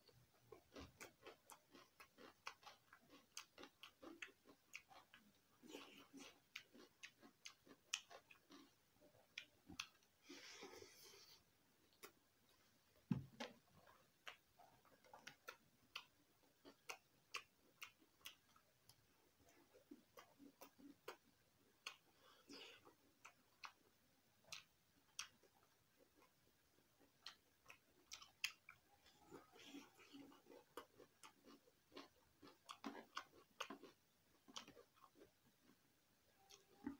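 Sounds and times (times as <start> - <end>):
man chewing with mouth clicks: 0.0 - 12.2, 13.4 - 36.9.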